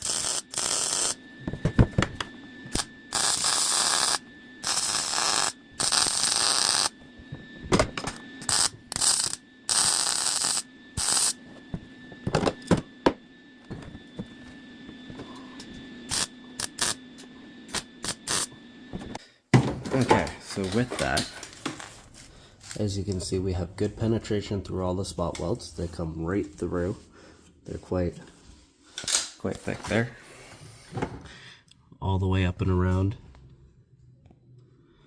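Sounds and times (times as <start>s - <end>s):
welding arc bursts: 0.0s - 1.2s, 2.7s - 7.0s, 8.4s - 11.4s, 16.1s - 17.0s, 17.7s - 18.5s
steady hum: 0.0s - 35.0s.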